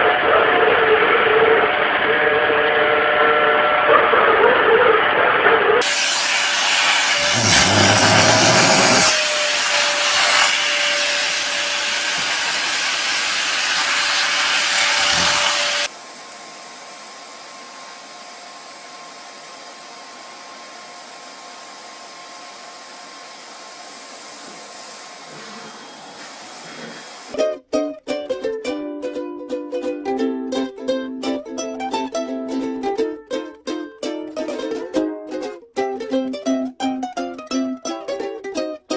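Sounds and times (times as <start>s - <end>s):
vacuum cleaner whining: 0.0s - 4.0s, 5.0s - 27.4s.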